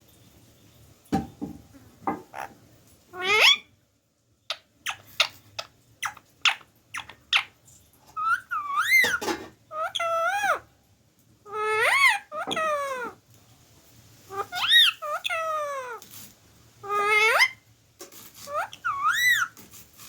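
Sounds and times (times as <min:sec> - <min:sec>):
parrot whistling: 0:18.5 - 0:19.5.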